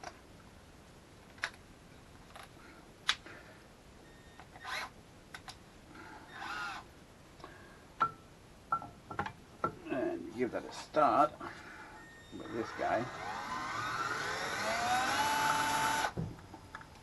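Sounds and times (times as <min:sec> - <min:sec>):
short wavering squeak: 0:12.0 - 0:12.6.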